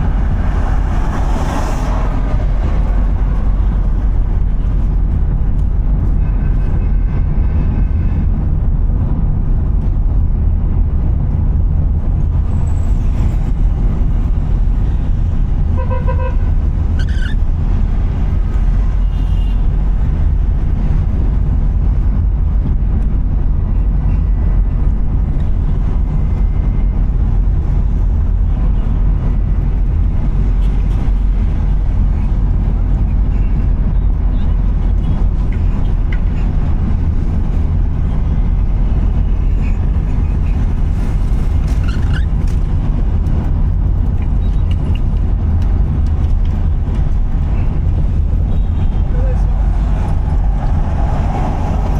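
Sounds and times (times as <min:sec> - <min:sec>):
car driving low rumble: 0:00.0 - 0:51.9
vehicle horns tooting: 0:15.7 - 0:17.2.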